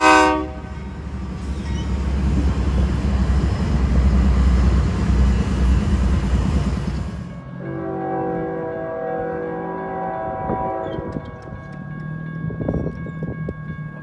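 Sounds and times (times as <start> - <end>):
locomotive engines: 0.0 - 7.6
rail noise: 0.0 - 13.9.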